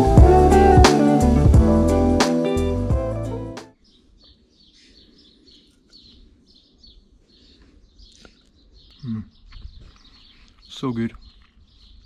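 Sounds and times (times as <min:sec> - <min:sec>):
small birds twittering: 0:03.7 - 0:12.0.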